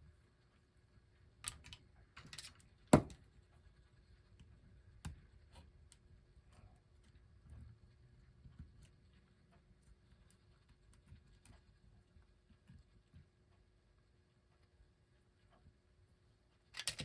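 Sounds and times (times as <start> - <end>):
small metal parts clicking: 16.8 - 17.0.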